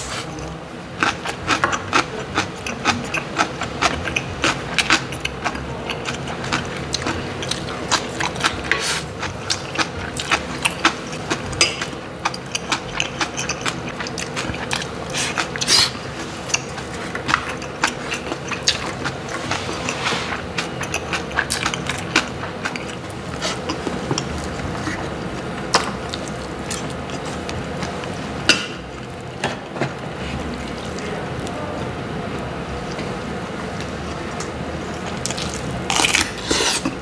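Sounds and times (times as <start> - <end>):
chewing and lip-smacking: 1.0 - 28.2.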